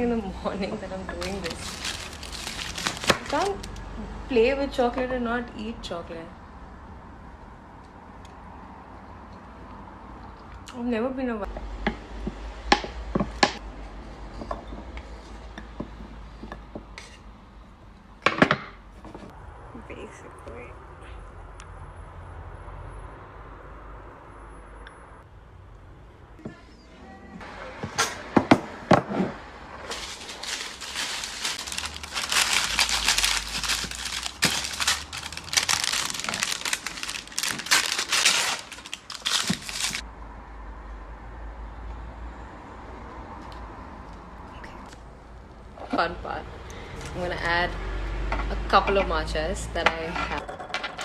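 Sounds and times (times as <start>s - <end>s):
packaging crinkling: 1.2s - 3.9s, 29.9s - 40.0s.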